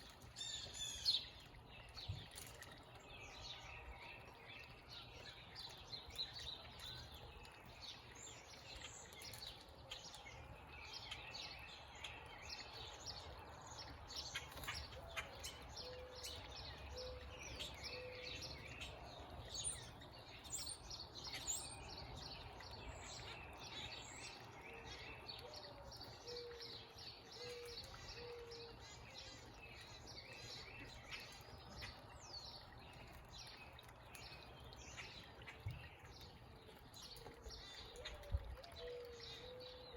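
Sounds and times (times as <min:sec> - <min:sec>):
low repeated cooing: 0:37.9 - 0:39.9.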